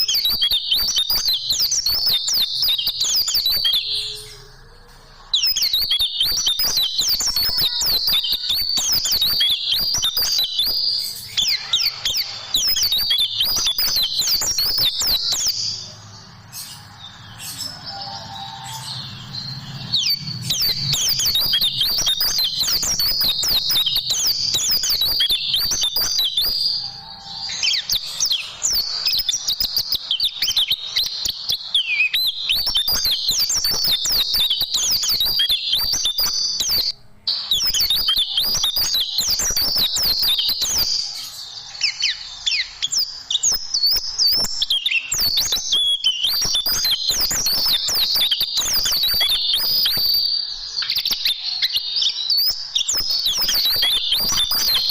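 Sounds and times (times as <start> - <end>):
bird twittering song: 0.0 - 54.9.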